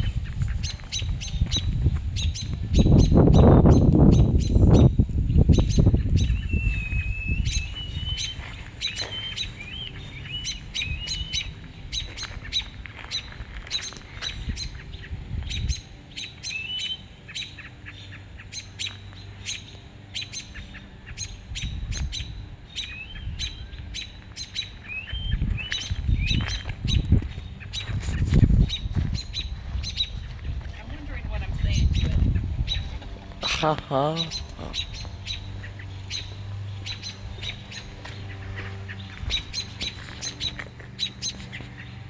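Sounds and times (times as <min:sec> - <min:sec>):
birds chirping: 0:00.0 - 0:42.0
wavering whistled bird notes: 0:02.2 - 0:14.8.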